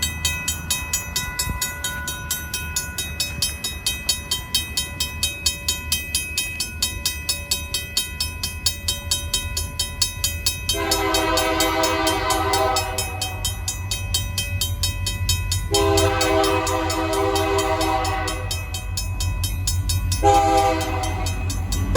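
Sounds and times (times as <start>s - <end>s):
crossing bell ringing: 0.0s - 21.9s
locomotive rumble: 0.0s - 21.9s
locomotive horn blast: 10.7s - 13.4s, 15.7s - 18.7s, 20.2s - 21.5s.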